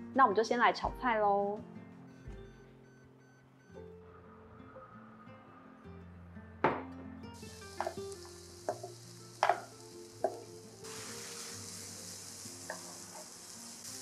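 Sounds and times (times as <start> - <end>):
vegetables sizzling in hot oil: 7.4 - 14.0
bowl and spatula knocking on pan: 8.7 - 10.4.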